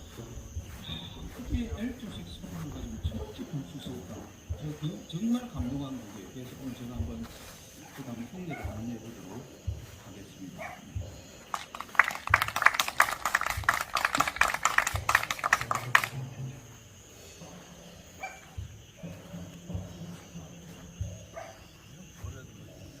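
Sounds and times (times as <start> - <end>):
small group clapping: 11.4 - 16.4.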